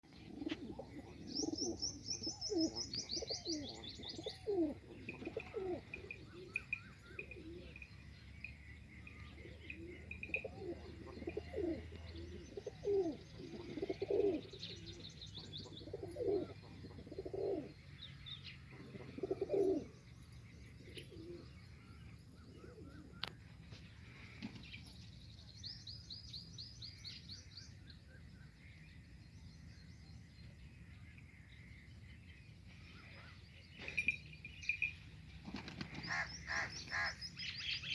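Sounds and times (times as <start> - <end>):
small birds chirping: 0.0 - 37.9
pigeons cooing: 0.1 - 8.0, 9.4 - 17.9, 18.6 - 20.0, 20.7 - 21.8, 22.4 - 23.4, 35.4 - 37.2.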